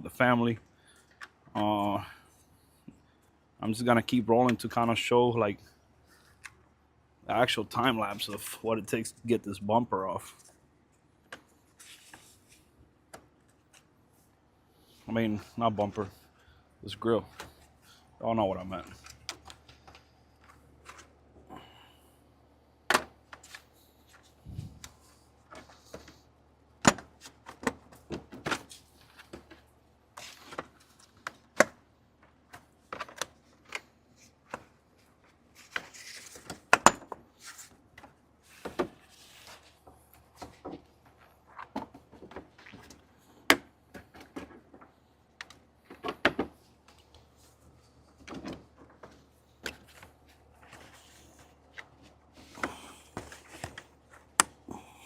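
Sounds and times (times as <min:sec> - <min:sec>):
plastic panel being handled: 0:48.0 - 0:54.6.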